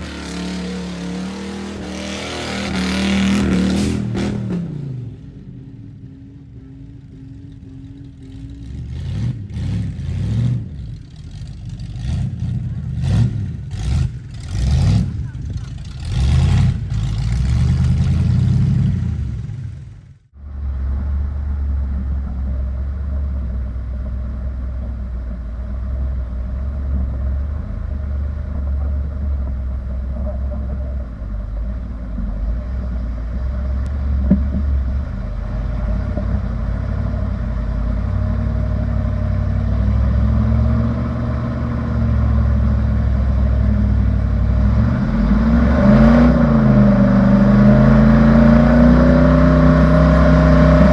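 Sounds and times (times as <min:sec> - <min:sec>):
truck engine droning: 0:00.0 - 0:50.9.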